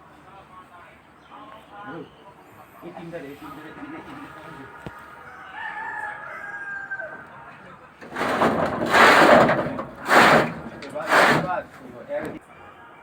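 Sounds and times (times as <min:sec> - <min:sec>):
rooster crowing: 0:05.2 - 0:07.4
burst of harsh noise: 0:08.1 - 0:12.4.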